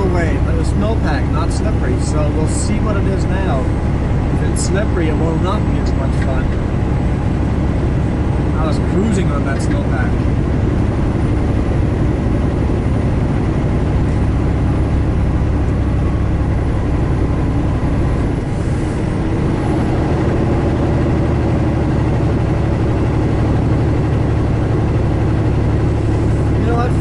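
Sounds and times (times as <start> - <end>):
road noise: 0.0 - 27.0
truck engine drone: 0.0 - 27.0.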